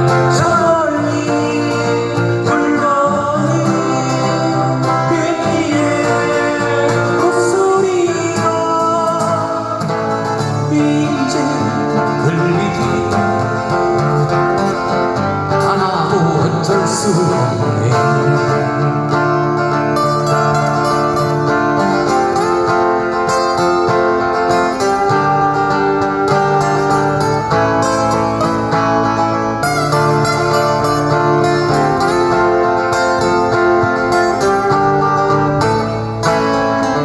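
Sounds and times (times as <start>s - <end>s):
person singing: 0.0s - 28.4s
guitar accompaniment: 0.0s - 37.0s.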